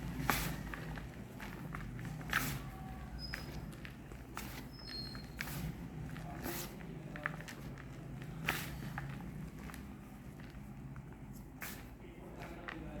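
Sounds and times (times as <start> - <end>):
chalk bars crunching: 0.0 - 9.6.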